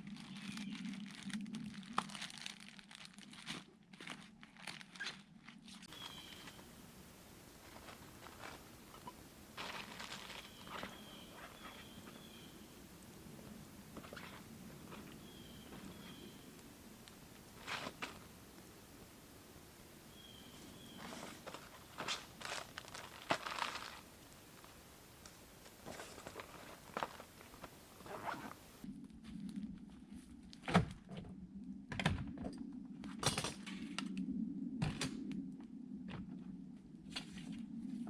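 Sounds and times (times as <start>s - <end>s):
steady low hum: 5.9s - 29.9s.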